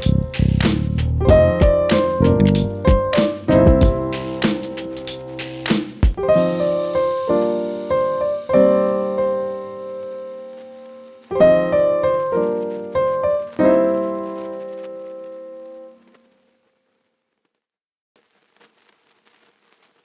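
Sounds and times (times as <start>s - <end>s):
piano chords ringing out: 1.2s - 16.1s
high shimmering hiss: 2.0s - 15.9s.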